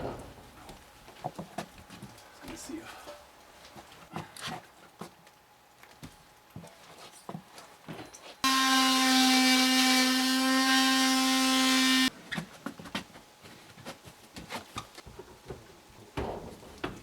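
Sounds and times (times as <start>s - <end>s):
power tool whining: 8.4s - 12.1s.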